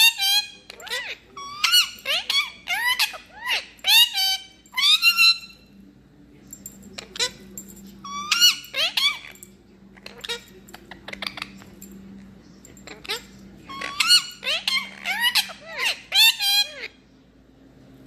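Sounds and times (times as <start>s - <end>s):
parrot squeaking: 0.0s - 5.7s, 7.0s - 7.4s, 8.0s - 11.7s, 12.8s - 17.0s.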